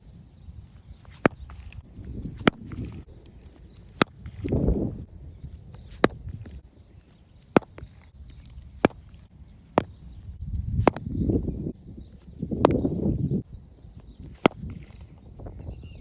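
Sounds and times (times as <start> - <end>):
cricket bat knocking ball: 1.0 - 4.9, 5.6 - 11.5, 12.2 - 13.2, 14.2 - 15.0.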